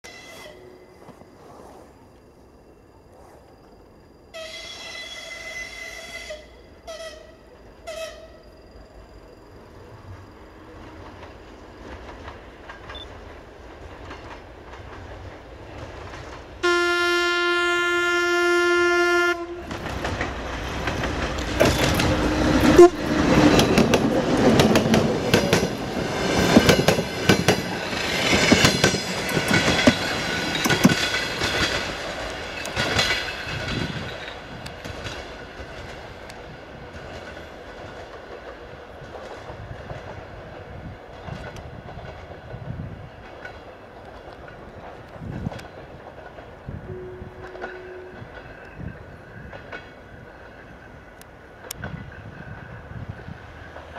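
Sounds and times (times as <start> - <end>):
train wheels clickety-clack: 10.8 - 16.6, 19.6 - 53.9
locomotive horn blast: 16.6 - 19.8, 22.2 - 23.5, 46.9 - 48.3.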